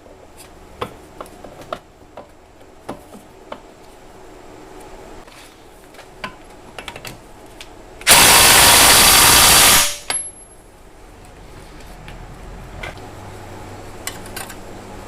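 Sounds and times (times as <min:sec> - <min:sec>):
handheld power tool running: 0:08.1 - 0:10.0.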